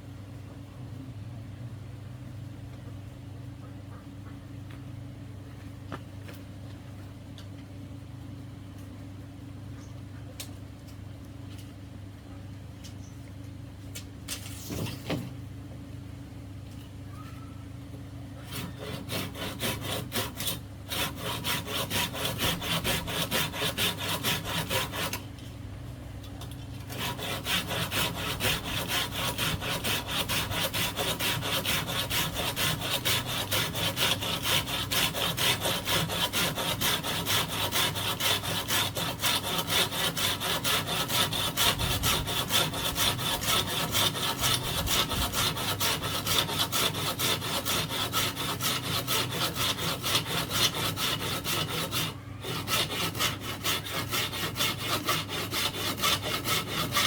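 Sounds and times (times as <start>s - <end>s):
hand saw cutting bamboo: 18.4s - 25.4s, 26.4s - 57.0s.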